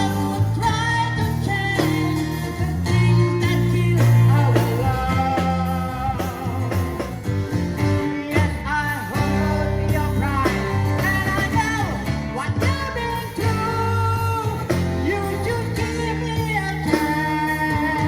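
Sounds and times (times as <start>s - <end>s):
bass: 0.0s - 18.0s
guitar: 0.0s - 18.0s
man singing: 0.0s - 18.0s.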